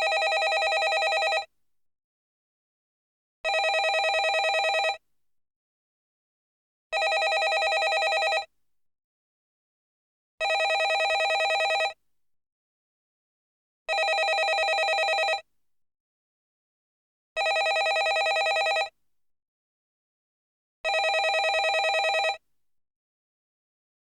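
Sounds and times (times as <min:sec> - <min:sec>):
landline telephone ringing: 0:00.0 - 0:01.5, 0:03.5 - 0:05.0, 0:07.0 - 0:08.5, 0:10.4 - 0:12.0, 0:13.9 - 0:15.4, 0:17.4 - 0:18.9, 0:20.9 - 0:22.4.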